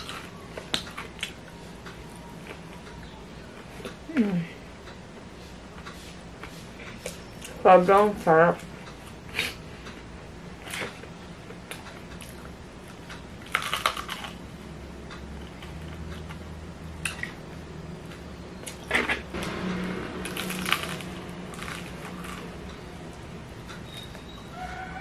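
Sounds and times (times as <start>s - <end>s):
steady low hum: 0.0s - 25.0s
crunching fried chicken: 11.7s - 14.6s, 18.0s - 23.0s.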